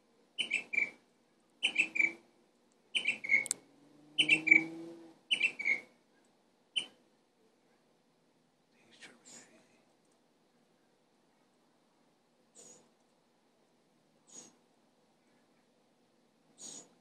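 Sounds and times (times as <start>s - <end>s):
bird chirping: 0.4s - 1.0s, 1.6s - 2.2s, 2.9s - 7.0s.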